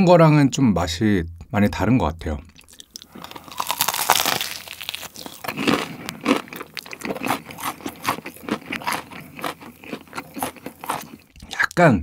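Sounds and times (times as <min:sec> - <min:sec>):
crunchy chewing: 0:02.5 - 0:11.7
crunchy bite into fried chicken: 0:02.6 - 0:11.6.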